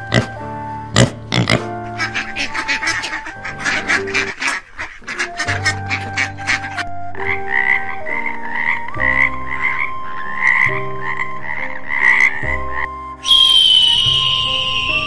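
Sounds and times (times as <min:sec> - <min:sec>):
background music sustained notes: 0:00.0 - 0:15.0
toad croaking: 0:06.5 - 0:12.8.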